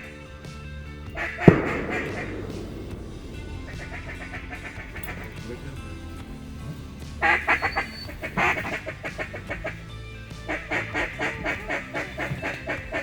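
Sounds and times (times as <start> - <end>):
music: 0.0 - 13.0
duck quacking rapidly: 7.2 - 9.8, 10.5 - 13.0.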